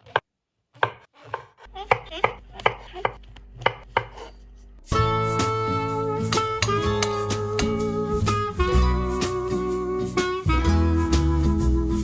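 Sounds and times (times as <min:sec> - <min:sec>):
background music: 0:04.8 - 0:12.0.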